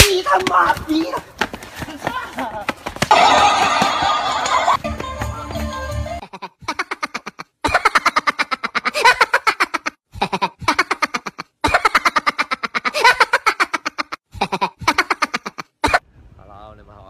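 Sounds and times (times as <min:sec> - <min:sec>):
man laughing hard: 0:06.2 - 0:16.0.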